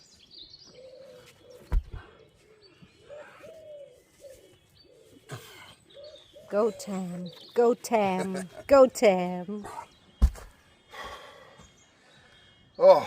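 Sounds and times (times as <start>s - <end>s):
pigeon cooing: 0.8s - 7.2s
dull thump: 1.6s - 2.1s, 10.2s - 10.5s.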